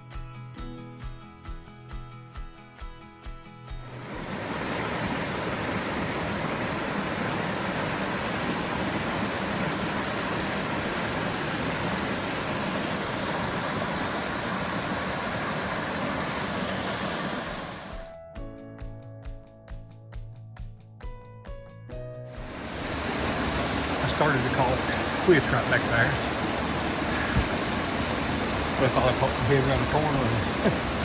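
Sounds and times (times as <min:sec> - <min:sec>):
waterfall pouring over rocks: 0:03.9 - 0:18.1, 0:22.4 - 0:31.0.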